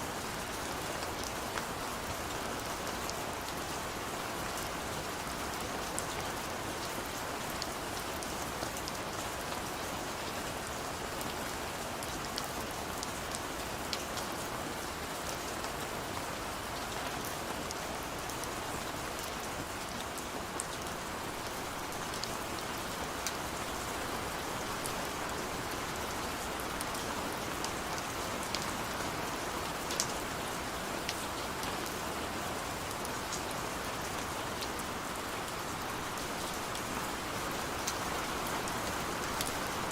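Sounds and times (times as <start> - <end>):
rain falling: 0.0 - 39.9
raindrops ticking on surface: 19.2 - 32.0, 34.1 - 39.9.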